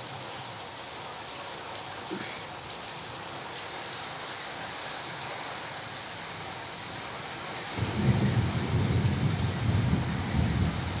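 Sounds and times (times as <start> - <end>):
thunder rumbling: 7.8 - 11.0.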